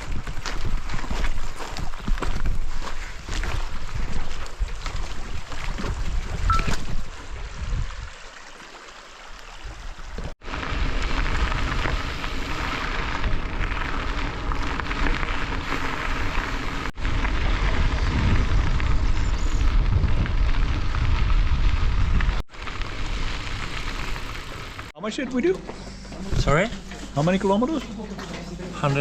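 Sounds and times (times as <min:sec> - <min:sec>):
wind buffeting microphone: 0:00.0 - 0:08.2, 0:15.2 - 0:24.4
deep rumbling: 0:10.4 - 0:24.9.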